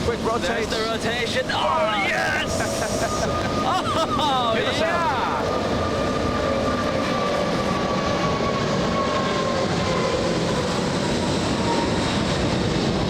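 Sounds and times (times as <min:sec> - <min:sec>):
jet engines rumbling with whine: 0:00.0 - 0:13.0.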